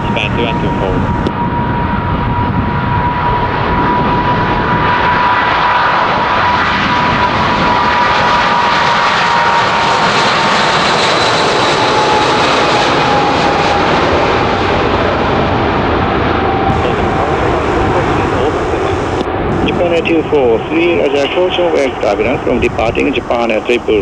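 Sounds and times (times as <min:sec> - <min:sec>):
jet engine roar and whine: 0:00.0 - 0:24.0.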